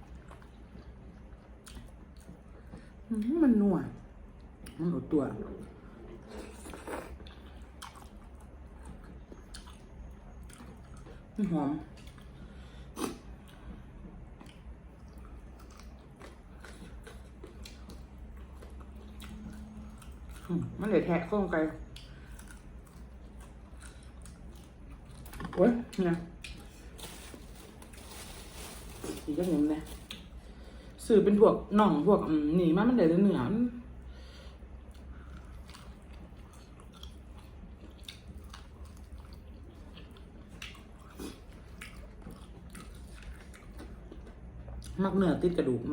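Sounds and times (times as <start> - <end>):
person chewing fried chicken: 0.0 - 3.0, 6.0 - 20.5, 21.8 - 25.4, 34.2 - 45.0.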